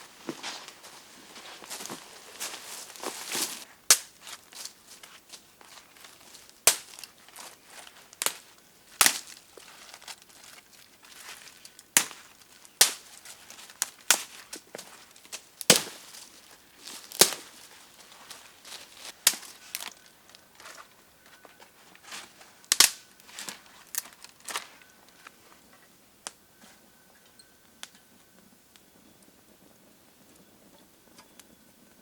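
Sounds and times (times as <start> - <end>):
faint crinkling and rustling: 0.0 - 26.0
sharp snaps and cracks: 1.7 - 20.8, 22.0 - 25.3.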